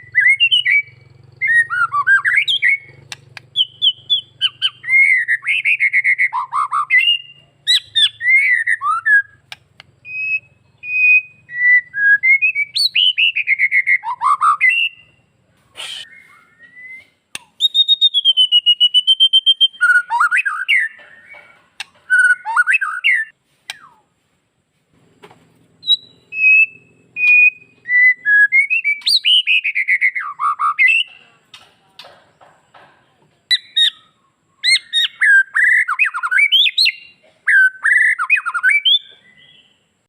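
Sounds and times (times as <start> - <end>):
bird singing whistles and trills: 0.0 - 24.1, 25.8 - 31.2, 33.5 - 40.0.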